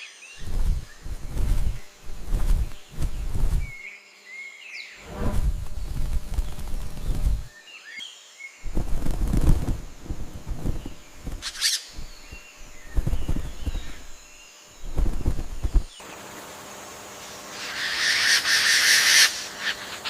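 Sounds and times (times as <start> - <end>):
low rustling: 0.4 - 3.8, 5.0 - 7.5, 8.7 - 16.0
bird chirps: 10.6 - 16.0.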